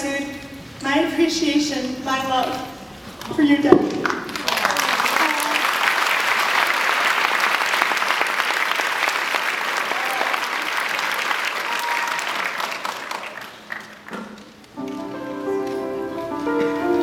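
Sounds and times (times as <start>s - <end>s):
audience applauding: 4.0s - 14.6s
music with sustained notes: 14.8s - 17.0s.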